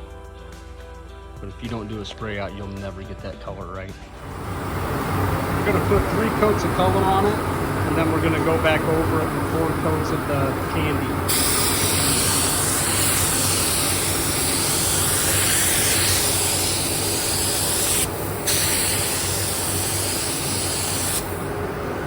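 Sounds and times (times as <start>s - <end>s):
low steady hum: 4.1s - 18.5s
spray gun hissing: 11.2s - 21.5s.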